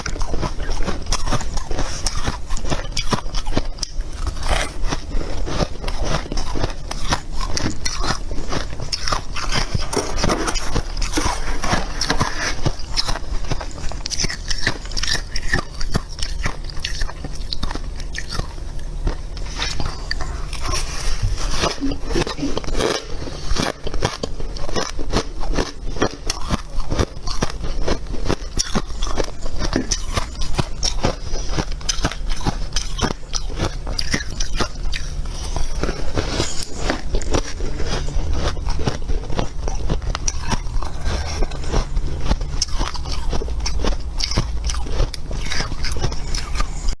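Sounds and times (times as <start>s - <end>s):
chewing crunchy frost: 0.0s - 47.0s.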